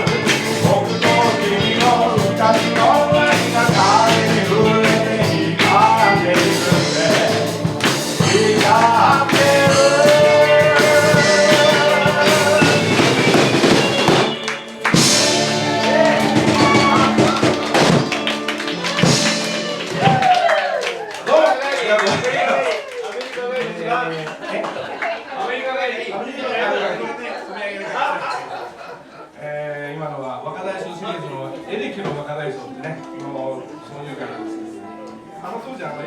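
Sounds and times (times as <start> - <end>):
person singing: 0.0 - 20.4
drums: 0.0 - 21.0
guitar: 0.0 - 21.0, 31.5 - 36.0.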